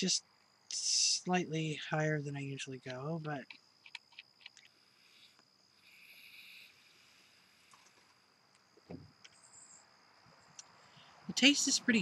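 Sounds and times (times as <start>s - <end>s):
soft breathy hiss: 0.0s - 3.4s, 4.6s - 8.3s
high-pitched insect tone: 0.0s - 12.0s
dull thump: 8.8s - 9.2s.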